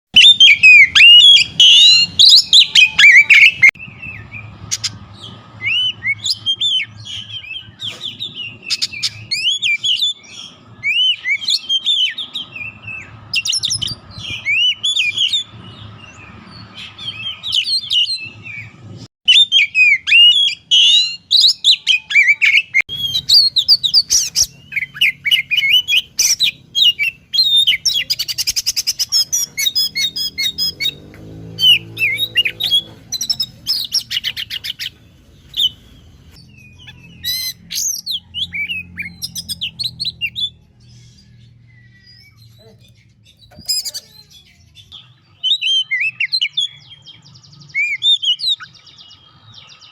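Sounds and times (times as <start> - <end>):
songbird whistles and chirps: 0.2 - 49.9.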